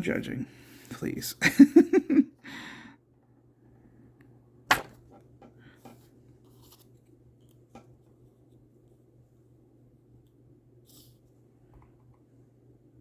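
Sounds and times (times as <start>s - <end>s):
stamp tapping on cardstock: 4.7s - 5.0s
paper rustling: 5.9s - 7.2s.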